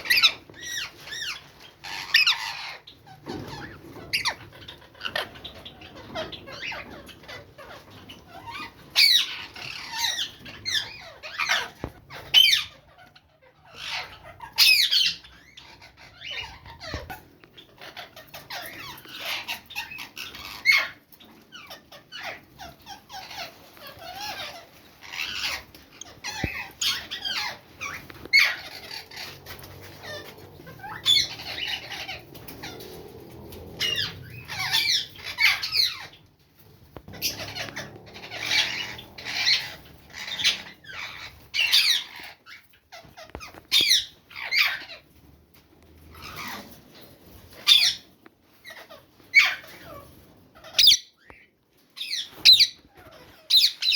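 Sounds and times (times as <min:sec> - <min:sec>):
bird chicks squeaky calls: 0:00.0 - 0:45.3, 0:46.0 - 0:53.9.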